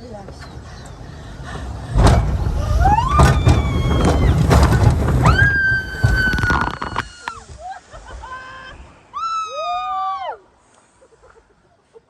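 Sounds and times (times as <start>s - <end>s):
low rushing rumble: 0.6s - 7.2s
riders screaming: 2.5s - 7.5s.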